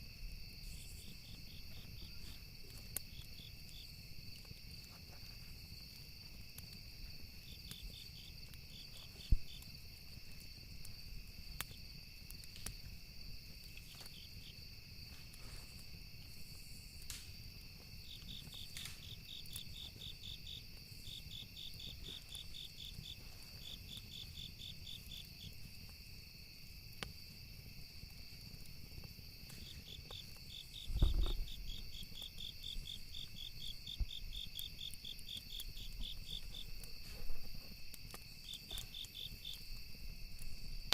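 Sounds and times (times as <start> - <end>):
campfire wood crackling: 0.0 - 40.9
crickets chirping: 0.0 - 40.9
low thump: 30.9 - 31.5.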